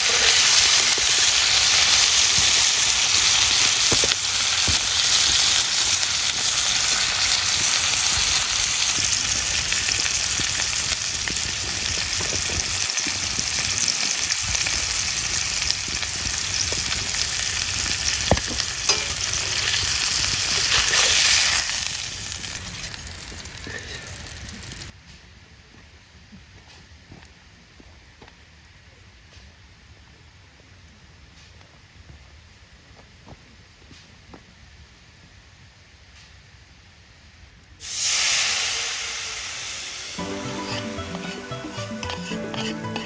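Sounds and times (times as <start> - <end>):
food sizzling in a frying pan: 0.0 - 24.9, 37.8 - 43.0.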